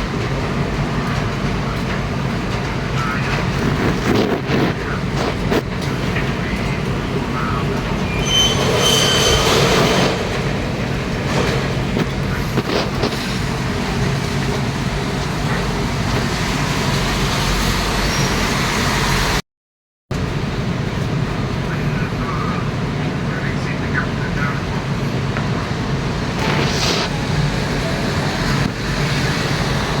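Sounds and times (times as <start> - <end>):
moving vehicle rumble: 0.0 - 19.4, 20.1 - 30.0
high-pitched squeal: 7.4 - 10.3, 17.1 - 19.4, 26.3 - 30.0.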